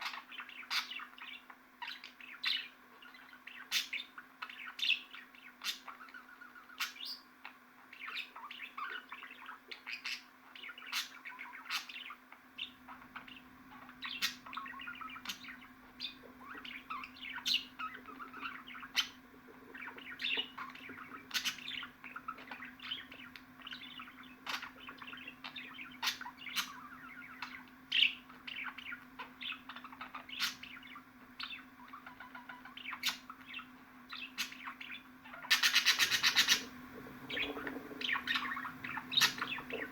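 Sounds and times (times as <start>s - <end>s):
budgerigar warbling and chirping: 0.0s - 39.9s
steady low hum: 12.3s - 39.9s.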